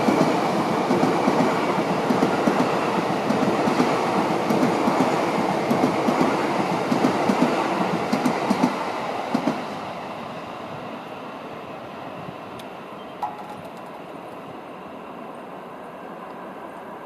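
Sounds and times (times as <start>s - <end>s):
train wheels clacking on rails: 0.0s - 9.7s.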